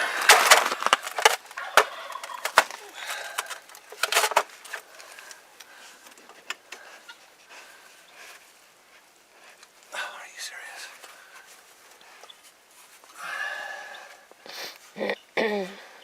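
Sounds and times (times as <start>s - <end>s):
turkey gobbling: 1.5s - 3.3s.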